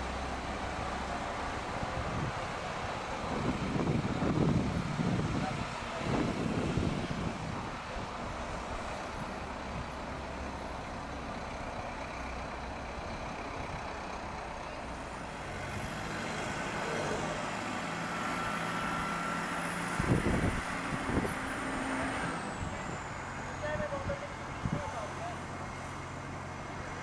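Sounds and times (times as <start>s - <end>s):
train rumble: 0.0s - 17.8s.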